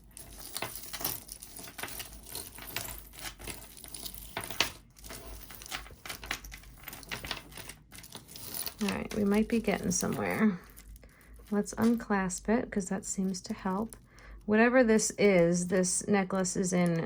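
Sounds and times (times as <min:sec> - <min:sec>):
metal chain clinking and rustling: 0:00.0 - 0:12.0.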